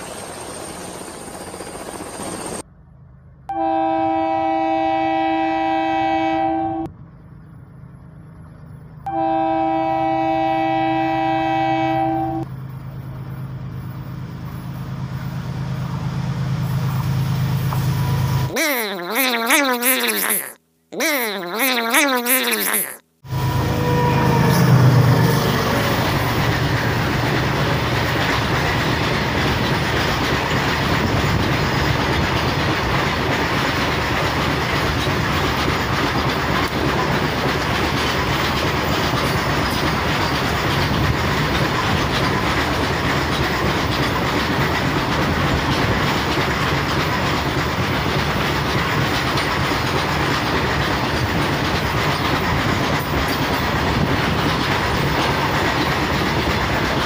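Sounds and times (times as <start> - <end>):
wheels clickety-clack on rails: 0.0 - 3.5, 12.4 - 18.5, 24.2 - 57.0
locomotive engine rumbling: 2.4 - 18.5, 23.3 - 57.0
freight wagons rolling past: 23.3 - 57.0.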